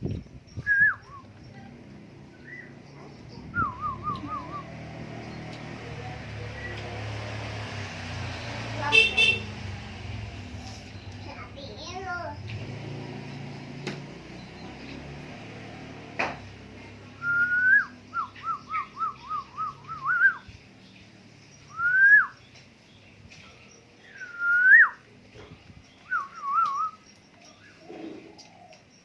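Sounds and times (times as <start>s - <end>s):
oriole fluty whistled song: 0.5s - 1.4s, 2.4s - 2.8s, 3.5s - 4.8s, 17.2s - 20.6s, 21.6s - 22.5s, 24.0s - 25.1s, 25.9s - 27.8s.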